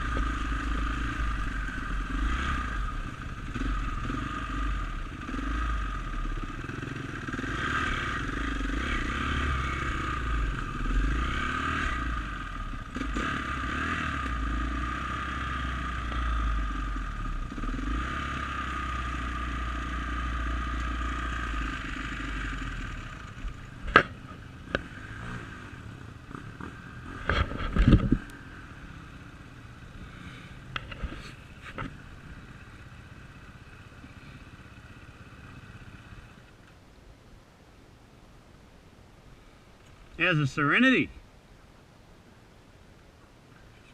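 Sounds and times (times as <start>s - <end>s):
dirt bike engine revving: 0.0s - 29.2s.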